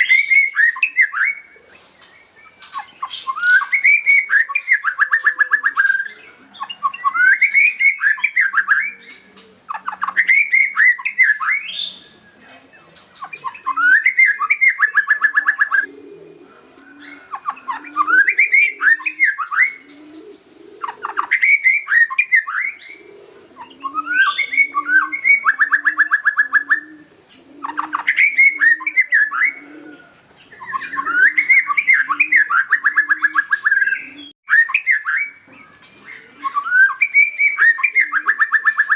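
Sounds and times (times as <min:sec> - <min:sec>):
dove cooing: 0:00.0 - 0:34.3, 0:35.2 - 0:38.9
bird singing whistles and trills: 0:00.0 - 0:38.9.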